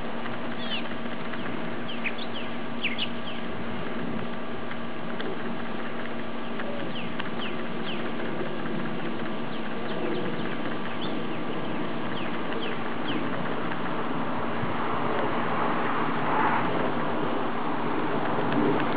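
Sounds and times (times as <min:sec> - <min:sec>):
birds chirping: 0:00.0 - 0:04.0, 0:04.6 - 0:14.1
steady hiss and low hum: 0:00.0 - 0:18.9.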